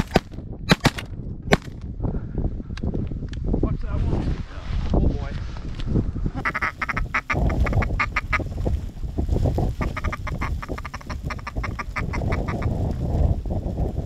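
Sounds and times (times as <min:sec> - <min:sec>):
wind rumble: 0:00.0 - 0:14.0
duck quacking: 0:06.4 - 0:08.4, 0:09.8 - 0:12.7.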